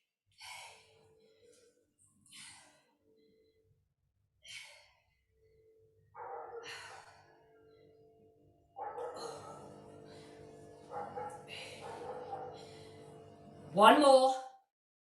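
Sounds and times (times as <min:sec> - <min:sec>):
woman breathing hard: 0:00.3 - 0:03.6, 0:04.4 - 0:08.3, 0:08.9 - 0:13.7.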